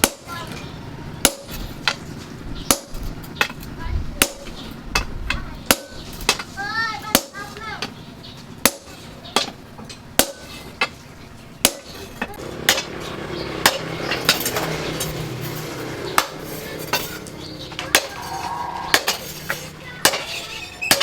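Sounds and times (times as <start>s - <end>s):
hammer striking metal: 1.2s - 2.0s, 11.6s - 21.0s.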